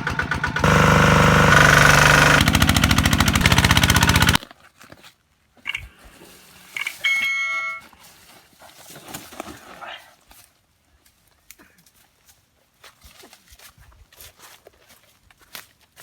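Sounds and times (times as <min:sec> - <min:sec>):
diesel engine chugging: 0:00.0 - 0:04.4.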